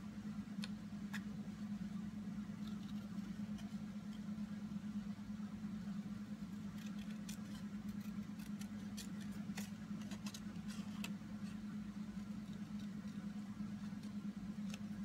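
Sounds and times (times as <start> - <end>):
steady low hum: 0.0 - 15.0
scissors snipping cardstock: 2.5 - 4.3, 6.5 - 15.0.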